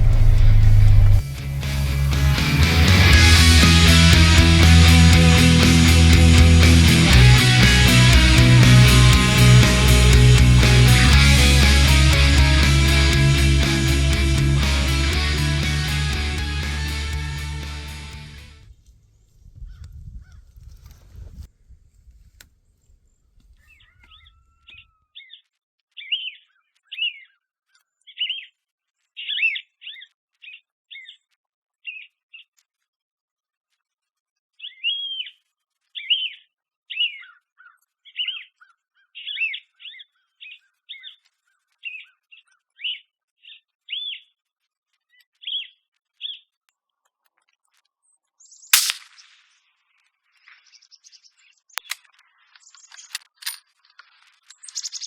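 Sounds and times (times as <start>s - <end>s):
low rumble: 0.0s - 18.6s
suppressed rifle shot: 48.8s - 49.4s
small bird chirping: 54.4s - 55.0s.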